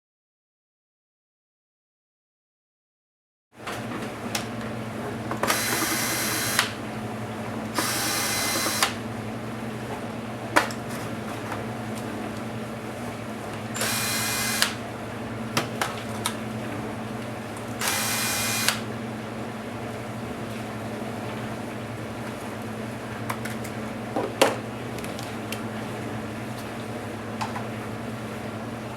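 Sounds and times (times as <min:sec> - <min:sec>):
electric screwdriver spinning: 0:05.4 - 0:06.8, 0:07.8 - 0:09.0, 0:13.8 - 0:14.8, 0:17.8 - 0:18.8.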